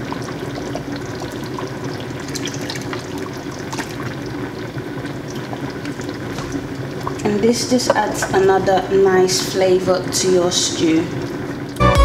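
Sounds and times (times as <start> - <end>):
sauce pouring: 0.0 - 8.4, 10.9 - 11.8
stew bubbling in a pot: 0.0 - 11.9.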